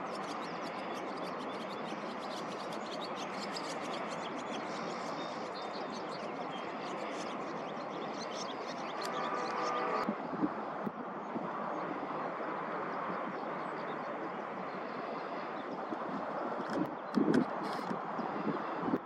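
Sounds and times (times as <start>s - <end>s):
birds chirping: 0.0s - 10.1s
rushing background noise: 0.0s - 19.0s.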